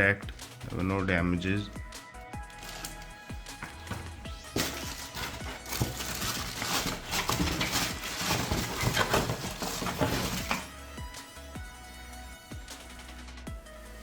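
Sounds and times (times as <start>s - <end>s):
background music: 0.0s - 14.0s
rustling: 2.5s - 10.7s.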